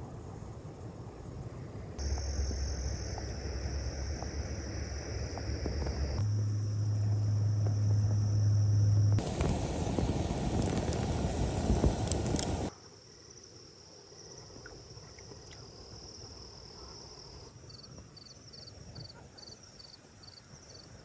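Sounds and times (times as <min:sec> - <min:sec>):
low hum: 0:00.0 - 0:12.7
insects trilling: 0:02.0 - 0:21.0.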